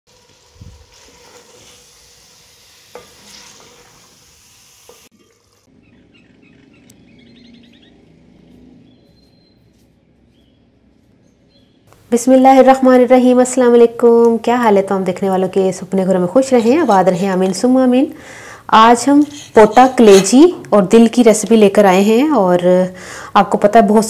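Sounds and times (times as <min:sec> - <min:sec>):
food sizzling in a pot: 0:00.1 - 0:05.7
wooden spoon stirring: 0:18.9 - 0:20.5.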